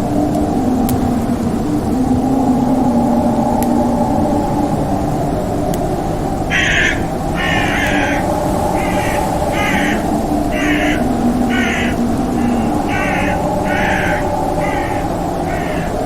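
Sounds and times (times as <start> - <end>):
low droning ambience: 0.0 - 16.0
crow cawing: 6.5 - 16.0.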